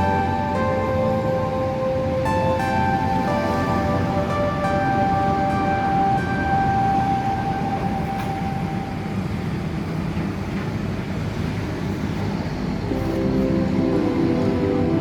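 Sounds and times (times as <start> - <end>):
music: 0.0 - 9.4, 12.9 - 15.0.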